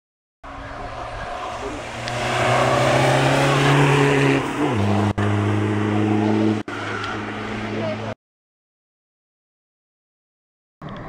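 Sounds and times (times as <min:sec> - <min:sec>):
diesel engine accelerating: 0:00.5 - 0:08.2.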